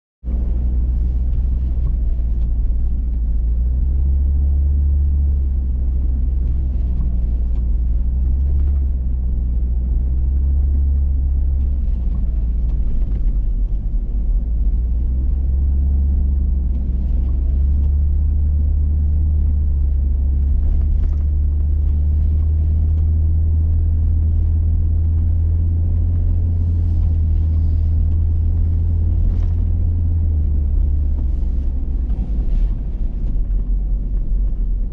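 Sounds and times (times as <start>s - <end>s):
engine and road rumble: 0.2s - 34.9s.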